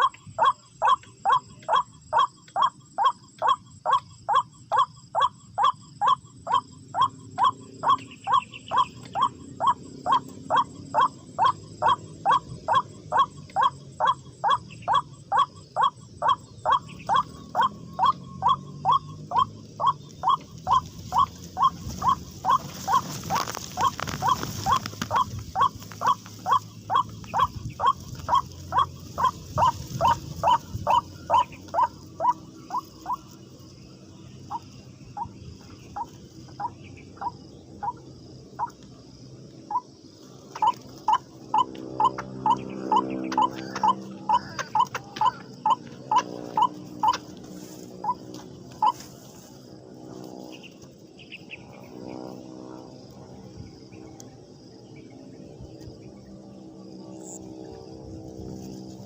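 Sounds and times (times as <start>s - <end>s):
waterhen calls: 0.0s - 33.3s, 40.5s - 47.3s, 48.8s - 49.1s.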